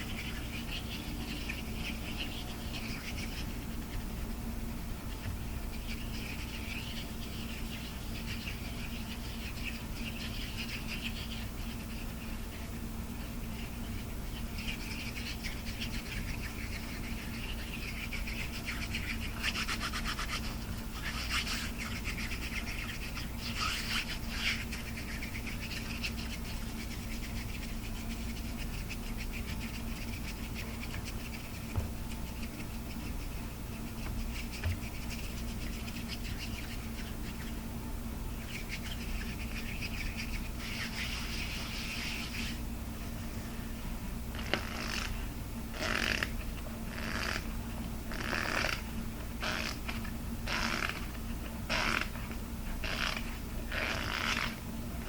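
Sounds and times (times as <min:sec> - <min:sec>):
low electrical hum: 0:00.0 - 0:55.0
close-up scratching and tapping: 0:13.9 - 0:37.6.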